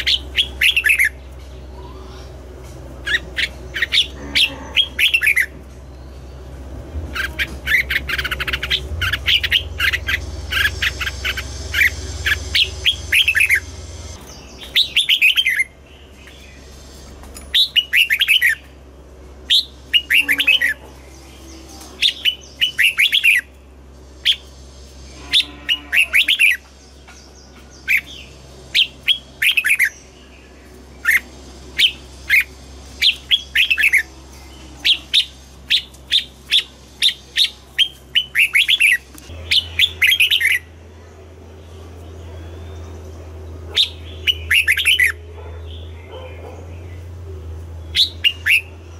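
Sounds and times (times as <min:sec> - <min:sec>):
low hum: 0:00.0 - 0:48.9
bird singing whistled phrases: 0:43.8 - 0:45.2, 0:47.9 - 0:48.8.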